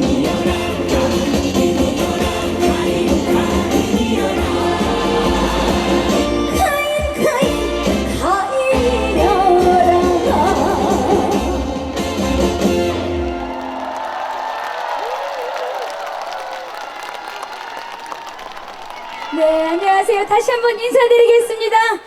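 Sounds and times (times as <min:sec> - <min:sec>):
woman singing: 0:00.0 - 0:11.7
live band playing: 0:00.0 - 0:13.6.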